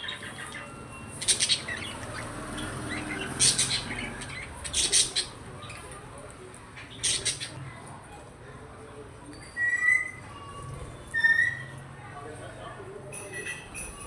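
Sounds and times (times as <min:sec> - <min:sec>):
budgerigars twittering: 0:00.0 - 0:06.0, 0:06.7 - 0:07.6.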